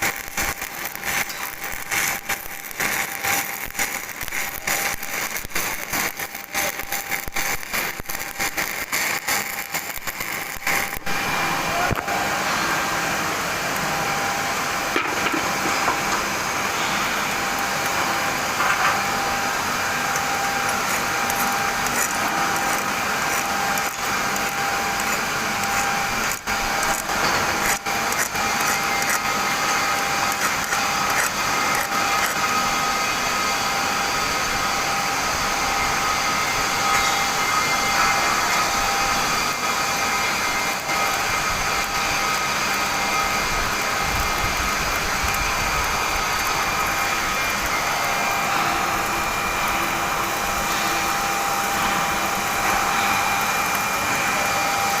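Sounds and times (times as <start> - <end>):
welding arc hissing and buzzing: 0.0 - 55.0.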